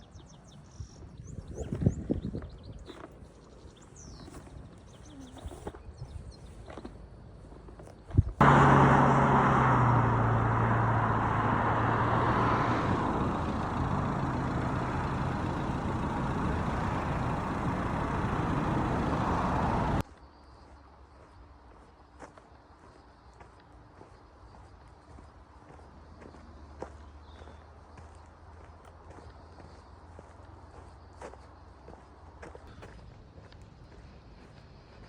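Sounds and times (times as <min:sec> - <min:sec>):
engine running loud: 0:08.4 - 0:20.0.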